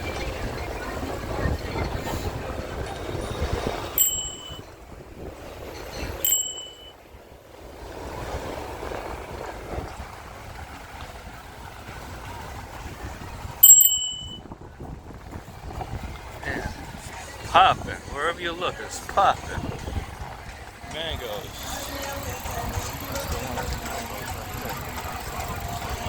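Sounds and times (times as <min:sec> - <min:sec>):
street noise: 0:00.0 - 0:26.0
wind: 0:00.0 - 0:26.0
bicycle bell ding: 0:04.0 - 0:04.7, 0:06.2 - 0:07.0, 0:13.6 - 0:14.4.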